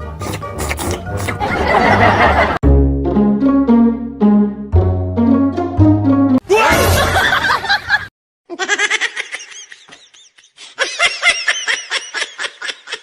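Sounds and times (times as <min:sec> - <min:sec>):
person laughing: 0:08.5 - 0:13.0.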